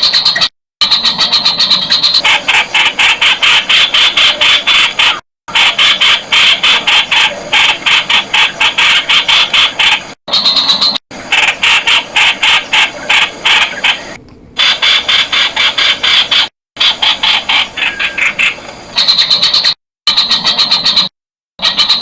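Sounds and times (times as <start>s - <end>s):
bulbul chattering calls: 17.0s - 19.7s.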